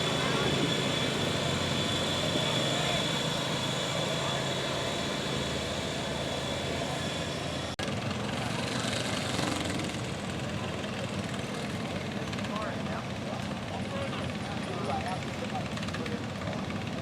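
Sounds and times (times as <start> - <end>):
engine running: 0.0 - 10.8.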